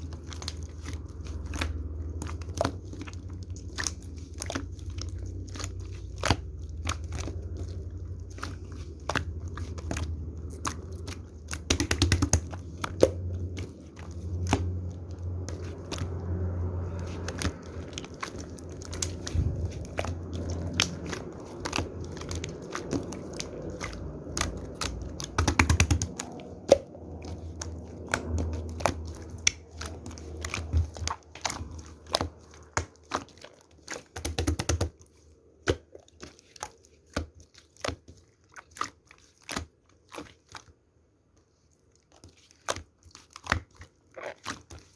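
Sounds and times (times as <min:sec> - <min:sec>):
low rumble: 0:12.6 - 0:25.4.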